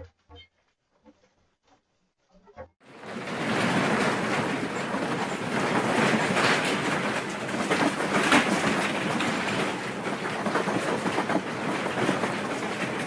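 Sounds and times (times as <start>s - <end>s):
things rattling and clattering: 2.8s - 13.0s.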